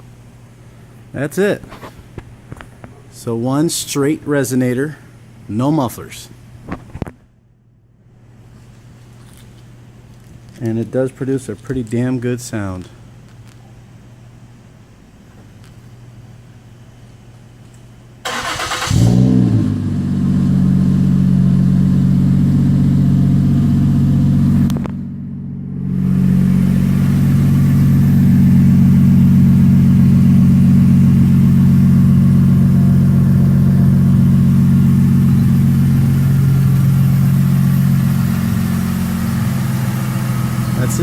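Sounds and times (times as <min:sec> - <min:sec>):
car engine revving and idling: 0:18.4 - 0:41.0.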